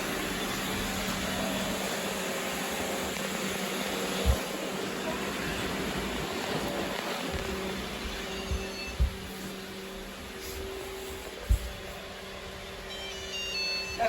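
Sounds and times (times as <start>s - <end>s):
robot vacuum whirring: 0.4s - 14.0s
low thump: 8.5s - 9.3s.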